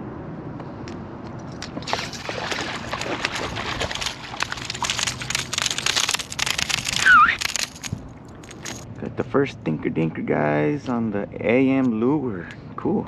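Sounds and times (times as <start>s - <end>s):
fish thrashing water splashing: 1.5s - 8.8s.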